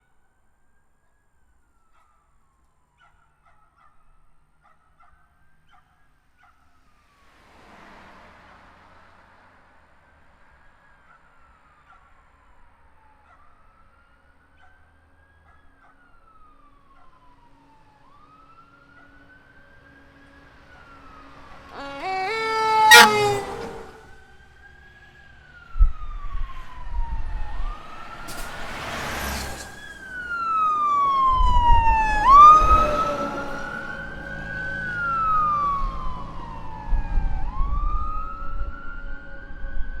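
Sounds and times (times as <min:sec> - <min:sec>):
fire truck sirens wailing: 0:12.8 - 0:40.0
diesel engines rumbling: 0:20.4 - 0:24.6, 0:27.7 - 0:36.8
air horn blast: 0:21.7 - 0:24.2.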